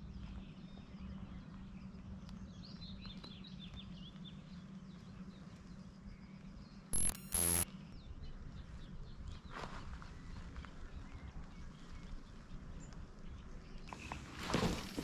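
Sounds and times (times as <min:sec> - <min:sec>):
steady low hum: 0:00.0 - 0:08.6
faint birdsong: 0:00.0 - 0:15.0
harsh noise bursts with whine: 0:07.0 - 0:07.6.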